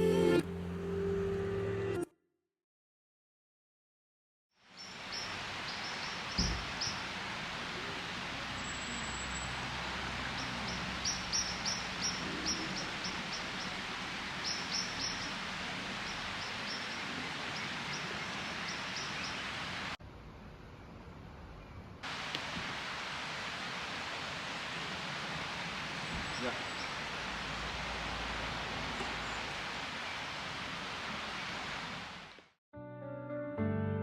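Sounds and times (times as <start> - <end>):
small birds chirping: 4.8 - 20.0, 25.6 - 28.0, 28.8 - 30.5
low thump: 6.4 - 6.7.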